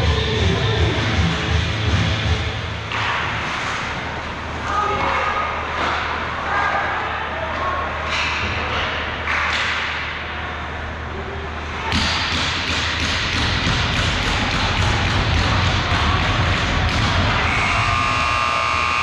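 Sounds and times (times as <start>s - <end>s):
loud rhythmic din: 11.9s - 19.0s.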